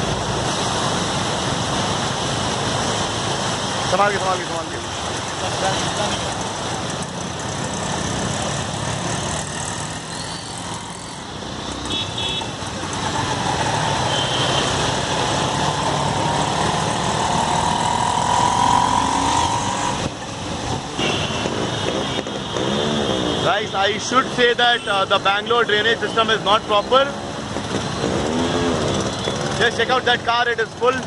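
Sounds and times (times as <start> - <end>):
vehicle engines running: 0.0 - 31.0
car horn beeping: 11.9 - 12.6.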